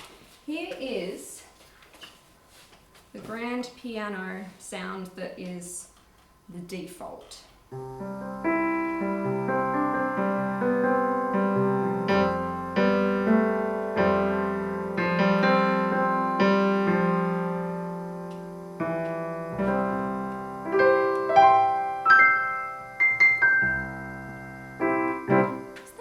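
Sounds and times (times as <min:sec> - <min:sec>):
piano chords: 0:07.7 - 0:26.0
piano melody of single notes: 0:07.7 - 0:26.0.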